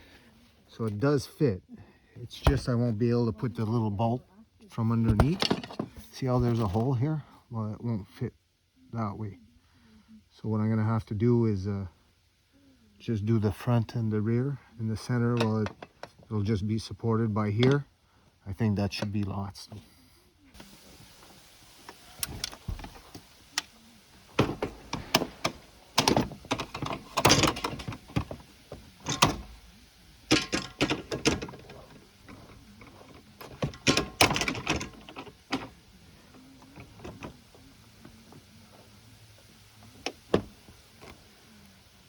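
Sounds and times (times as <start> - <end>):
metal brackets knocking and clanking: 24.3 - 35.8.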